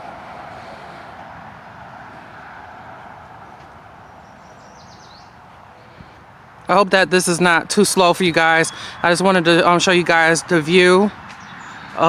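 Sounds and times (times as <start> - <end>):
distant highway traffic hiss: 0.0 - 12.0
bird chirp: 3.4 - 6.4, 8.0 - 12.0.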